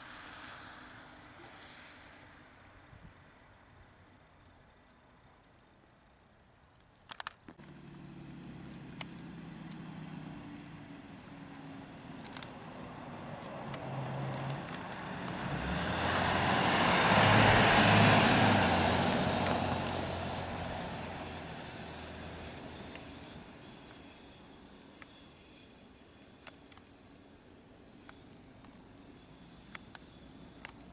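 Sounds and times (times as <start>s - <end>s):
vehicle driving past: 7.6s - 25.7s.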